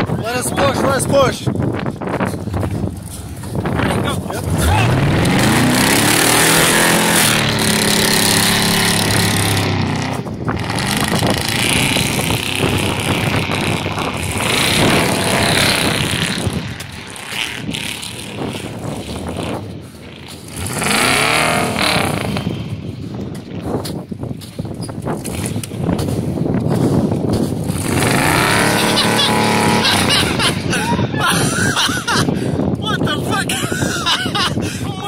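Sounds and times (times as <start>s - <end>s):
truck engine revving hard: 3.0s - 22.8s, 27.5s - 32.3s.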